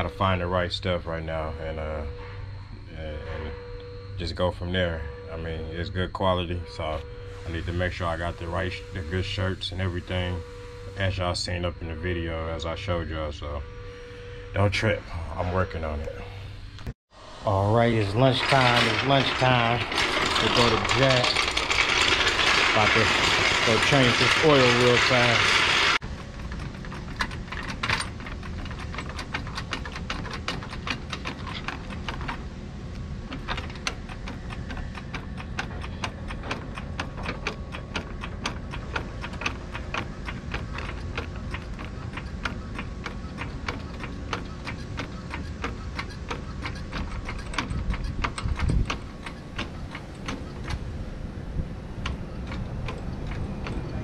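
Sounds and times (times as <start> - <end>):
steady low rumble: 0.0 - 24.4
rapid uneven clicking: 17.9 - 54.0.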